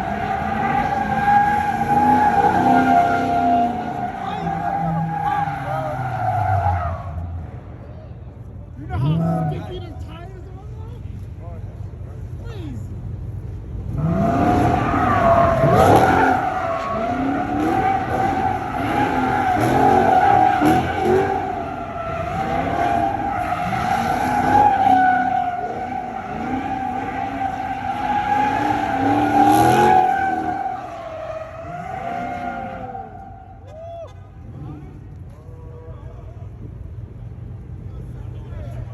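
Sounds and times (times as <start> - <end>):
car tires squealing: 0.0 - 7.8, 8.9 - 10.1, 13.9 - 36.6
car engine revving: 13.8 - 33.4.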